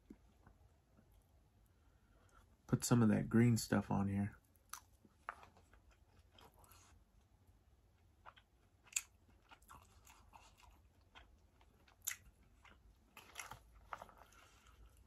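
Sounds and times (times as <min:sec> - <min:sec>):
person chewing food: 0:04.4 - 0:15.0.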